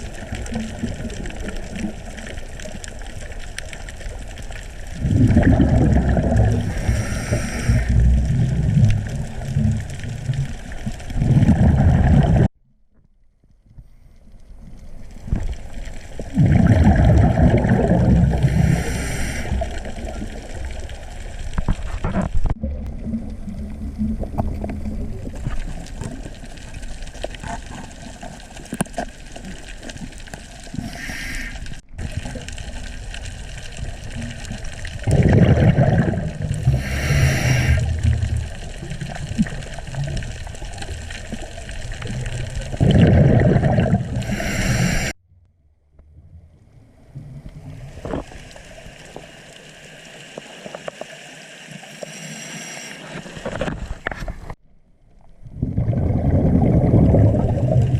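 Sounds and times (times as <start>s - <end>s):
bubbles gurgling: 0.0s - 12.5s, 15.2s - 30.9s, 31.8s - 45.2s, 55.4s - 57.9s
diver breathing through regulator: 6.5s - 8.0s, 18.3s - 19.9s, 30.7s - 31.8s, 36.6s - 37.9s, 44.2s - 45.2s, 52.0s - 53.4s.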